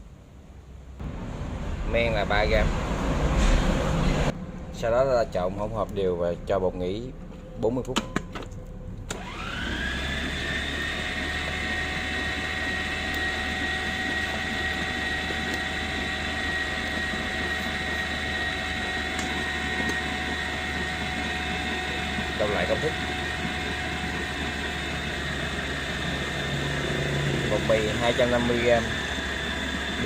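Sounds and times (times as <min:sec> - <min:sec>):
stand mixer motor whining: 0:09.1 - 0:30.0.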